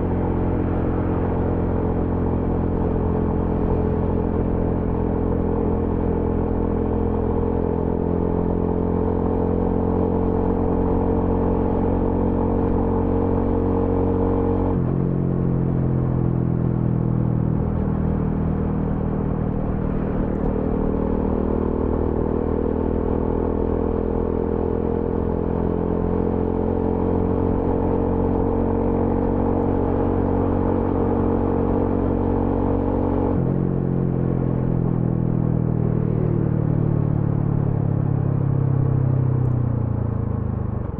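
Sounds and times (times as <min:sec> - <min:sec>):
motorcycle engine running: 0:12.6 - 0:32.2.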